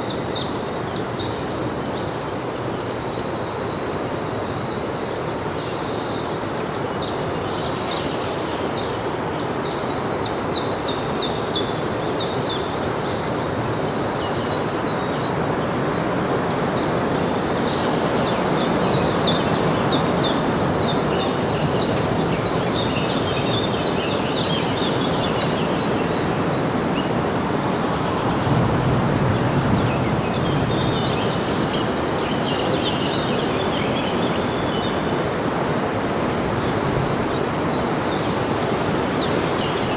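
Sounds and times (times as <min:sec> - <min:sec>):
outdoor background rush: 0:00.0 - 0:39.9
small birds chirping: 0:10.6 - 0:39.9.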